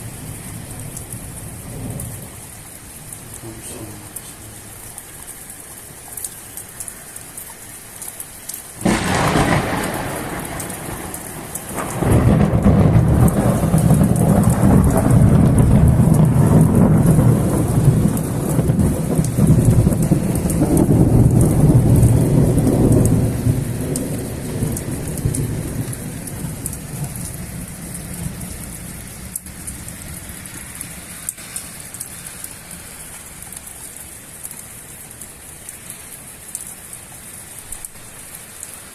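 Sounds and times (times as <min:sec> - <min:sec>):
steady rain: 0:00.0 - 0:38.9
sharp thunderclap: 0:08.8 - 0:26.7
rolling thunder rumble: 0:08.8 - 0:30.2.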